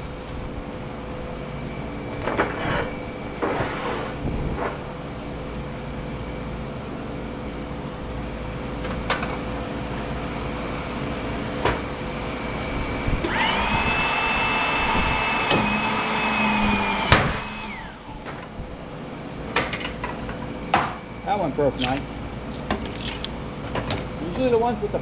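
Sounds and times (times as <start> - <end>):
machine hum: 0.0 - 23.6
electric motor whine: 10.3 - 18.6.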